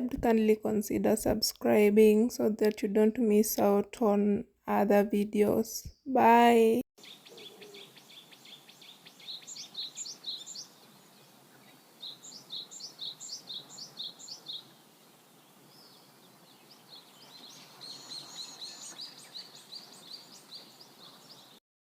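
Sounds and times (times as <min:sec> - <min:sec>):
faint outdoor background noise: 0:00.0 - 0:21.6
bird calling: 0:07.0 - 0:14.8.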